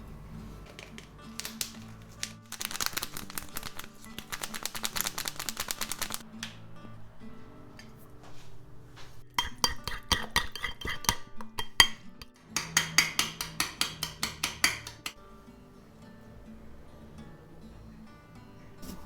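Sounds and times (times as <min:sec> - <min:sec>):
soft background music: 0:00.0 - 0:19.0
metal utensil clinking on dish: 0:09.4 - 0:13.3.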